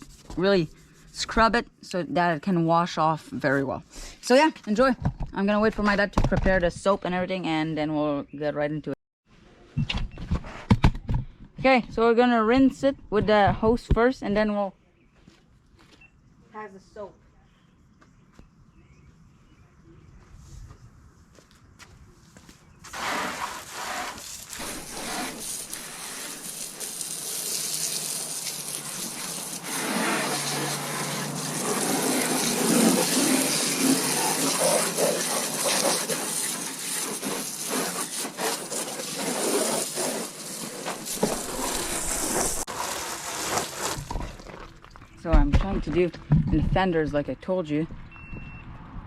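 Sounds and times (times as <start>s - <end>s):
hose spraying water: 22.9s - 44.7s.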